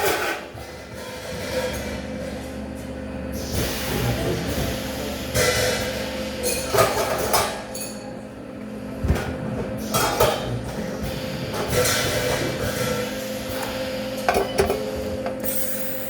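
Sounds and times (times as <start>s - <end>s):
machine hum: 15.2s - 16.0s.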